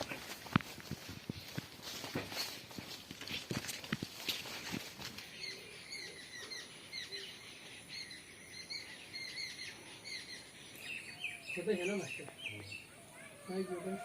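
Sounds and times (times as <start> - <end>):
sharp knocks like footsteps: 0.0 - 5.3
small birds chirping: 0.0 - 14.0.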